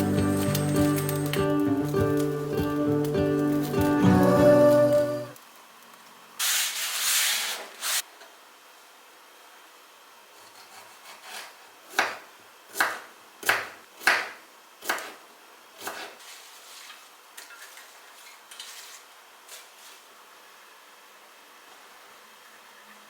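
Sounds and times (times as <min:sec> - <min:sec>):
scraping strokes: 0:15.9 - 0:20.1.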